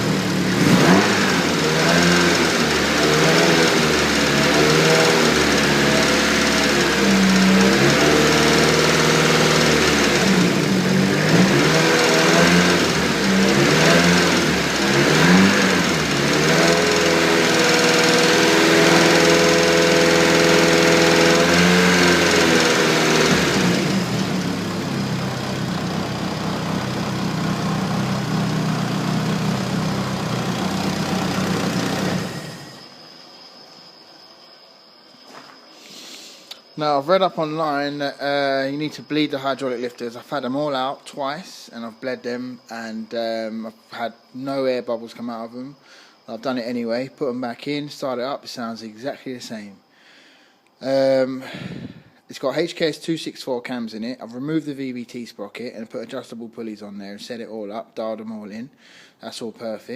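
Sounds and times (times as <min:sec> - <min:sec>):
engine ticking: 0:00.0 - 0:32.3
car engine revving and idling: 0:00.0 - 0:32.8.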